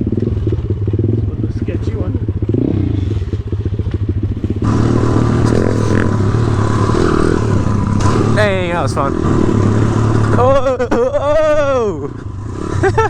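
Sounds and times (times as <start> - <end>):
motorbike engine putting: 2.3 - 10.7.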